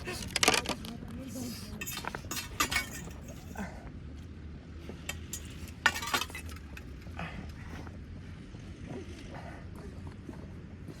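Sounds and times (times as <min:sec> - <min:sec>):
cutlery clinking against dishes: 0:01.8 - 0:03.5, 0:05.1 - 0:06.6.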